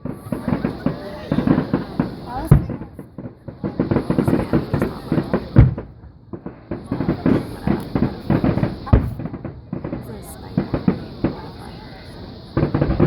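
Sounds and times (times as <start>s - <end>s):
fireworks crackling: 0.0s - 13.0s
heavy fireworks booms: 0.0s - 13.0s.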